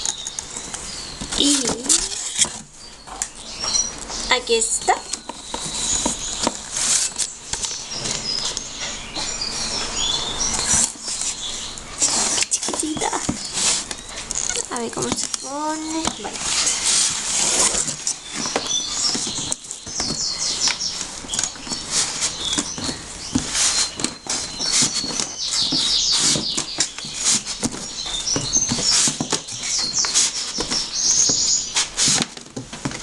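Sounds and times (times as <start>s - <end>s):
plastic packaging crinkling: 10.6s - 33.0s.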